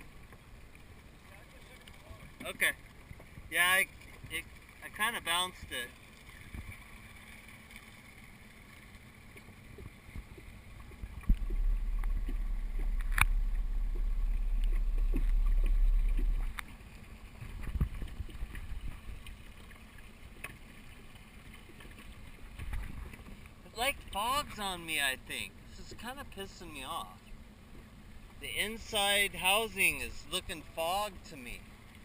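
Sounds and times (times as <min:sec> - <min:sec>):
muffled water sounds: 0:00.0 - 0:32.0
loud low underwater rumble: 0:11.0 - 0:19.2.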